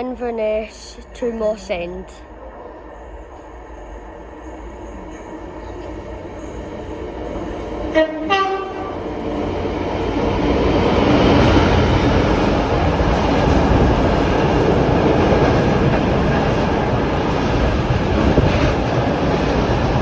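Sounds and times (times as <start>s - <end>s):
freight train rumbling past: 0.0s - 20.0s
train horn two notes: 7.9s - 9.2s.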